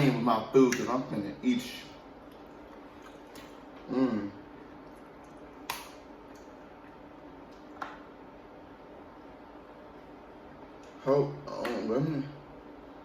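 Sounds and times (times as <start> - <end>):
quiet eating: 0.0 - 11.7
faint steady hum: 0.0 - 13.0
person humming: 3.9 - 4.4.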